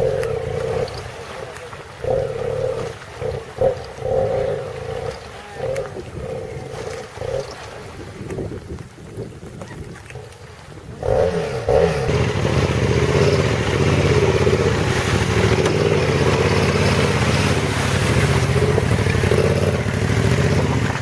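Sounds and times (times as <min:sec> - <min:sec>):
motorcycle engine running: 0:11.0 - 0:21.0.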